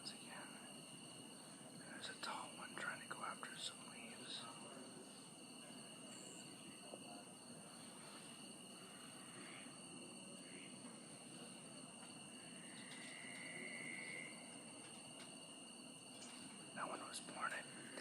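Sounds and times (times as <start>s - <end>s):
faint high-pitched drone: 0.0s - 18.0s.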